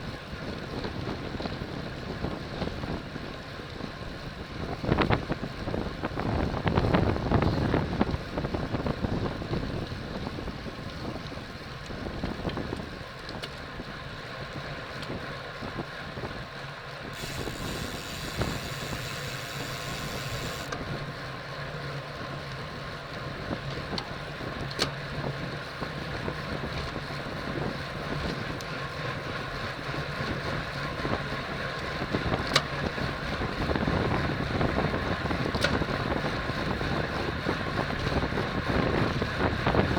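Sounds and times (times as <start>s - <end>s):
wind rushing over microphone: 3.8s - 13.0s, 30.3s - 39.9s.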